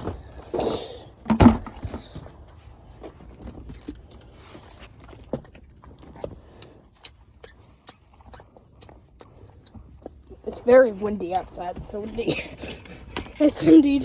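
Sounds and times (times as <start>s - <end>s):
objects being handled and set down: 1.2s - 2.4s.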